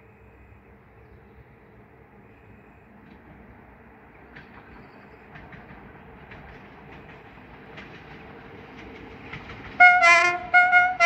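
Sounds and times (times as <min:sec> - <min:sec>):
distant train rumble: 0:00.0 - 0:11.0
wheels clicking over track: 0:04.2 - 0:11.0.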